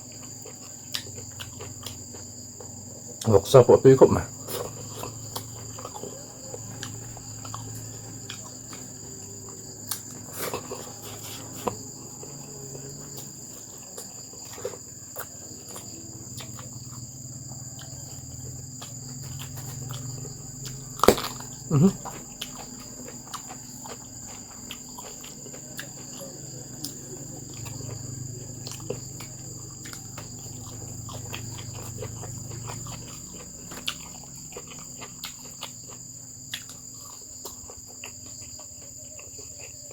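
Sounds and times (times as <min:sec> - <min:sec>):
crickets chirring: 0:00.0 - 0:39.9.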